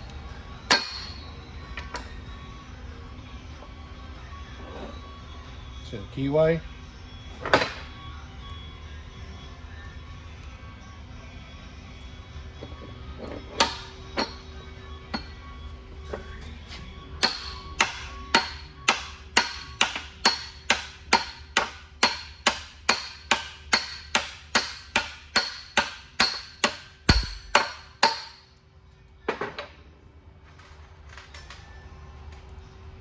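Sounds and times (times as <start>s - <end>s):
hammer striking metal: 0.7s - 1.2s, 13.6s - 14.4s, 17.2s - 28.5s.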